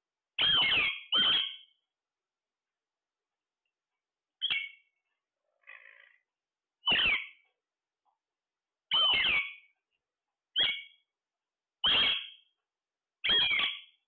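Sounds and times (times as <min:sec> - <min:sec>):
parrot squawking: 0:00.4 - 0:01.7, 0:06.8 - 0:07.4, 0:08.9 - 0:09.7, 0:10.6 - 0:11.0, 0:11.8 - 0:12.4, 0:13.2 - 0:14.0.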